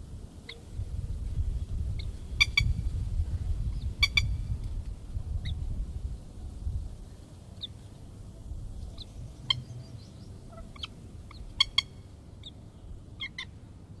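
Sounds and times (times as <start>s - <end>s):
lapwing short sharp calls: 3.9s - 4.4s.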